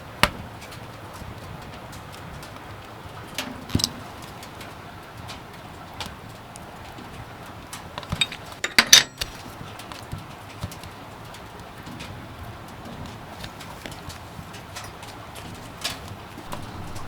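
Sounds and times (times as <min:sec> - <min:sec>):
light clicks and knocks of handling: 0:00.1 - 0:17.0.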